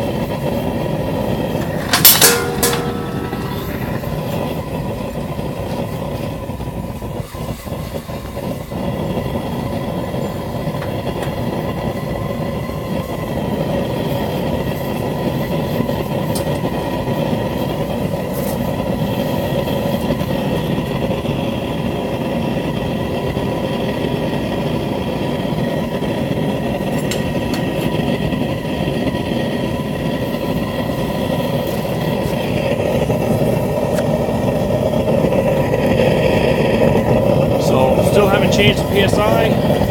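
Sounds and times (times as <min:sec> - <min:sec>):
propane burner flame rushing: 0:00.0 - 0:39.9
faint steady tones: 0:00.6 - 0:07.3.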